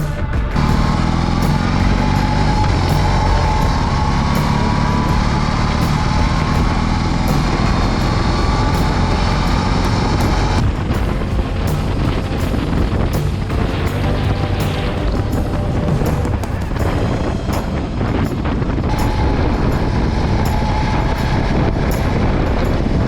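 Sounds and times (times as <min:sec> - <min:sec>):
background music: 0:00.0 - 0:23.0
motorcycle engine: 0:00.0 - 0:23.0
wind noise: 0:00.0 - 0:23.0.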